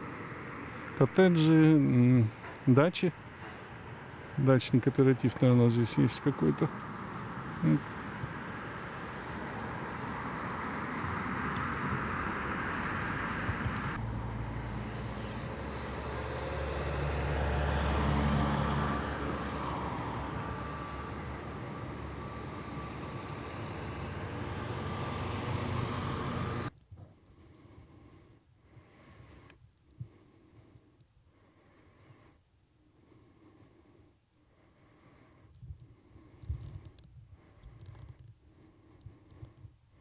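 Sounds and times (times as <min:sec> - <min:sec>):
vehicle passing close: 0:00.0 - 0:26.7
steady traffic noise: 0:00.0 - 0:26.8.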